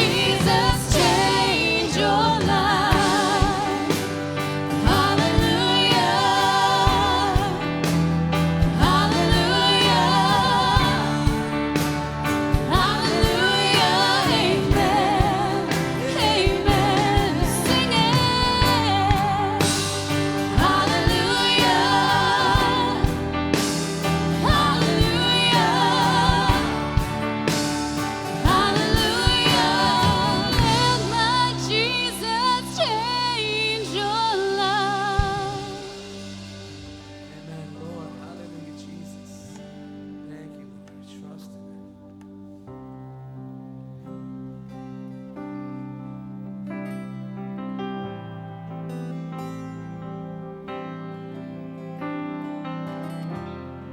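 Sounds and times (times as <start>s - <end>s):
person singing: 0.0s - 8.0s, 12.7s - 27.3s, 28.4s - 36.2s
gospel band playing: 0.0s - 43.3s.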